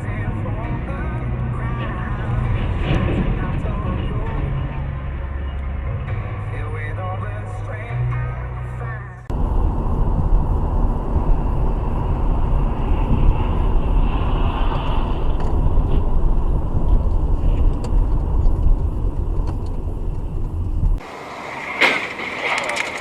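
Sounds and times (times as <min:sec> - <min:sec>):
car engine rumble: 0:00.0 - 0:23.0
road noise: 0:00.0 - 0:23.0.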